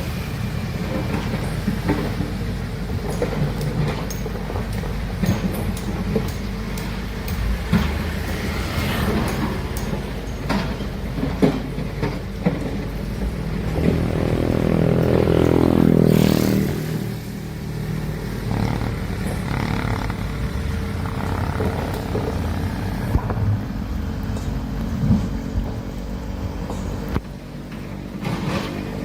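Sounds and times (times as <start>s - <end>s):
excavator diesel engine revving: 0.0s - 29.0s
metallic knocks: 3.0s - 12.8s.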